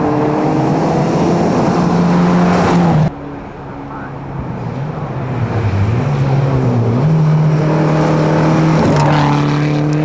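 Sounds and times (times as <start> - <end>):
rally car engine approaching: 0.0 - 10.0.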